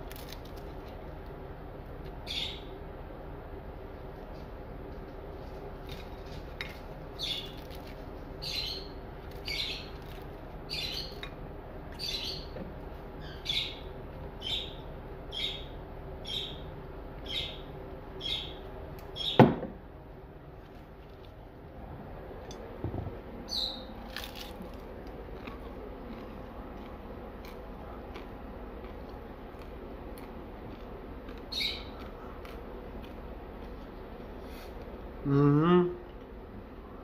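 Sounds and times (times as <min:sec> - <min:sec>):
low hum: 0:00.0 - 0:37.0
bird chirping: 0:02.2 - 0:02.7, 0:07.2 - 0:07.6, 0:08.4 - 0:10.0, 0:10.7 - 0:11.2, 0:11.9 - 0:12.6, 0:13.2 - 0:18.6, 0:19.2 - 0:19.4, 0:23.4 - 0:24.0, 0:31.5 - 0:32.0.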